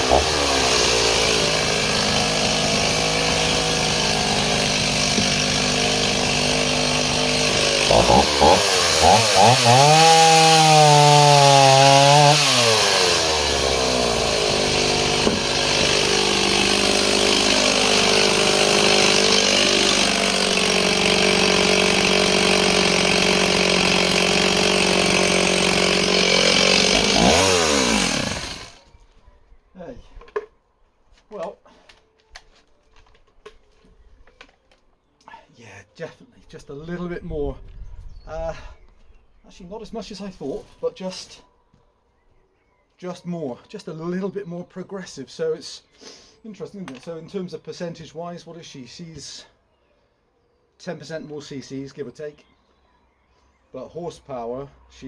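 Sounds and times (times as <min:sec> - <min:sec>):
chainsaw idling and revving: 0:00.0 - 0:28.8.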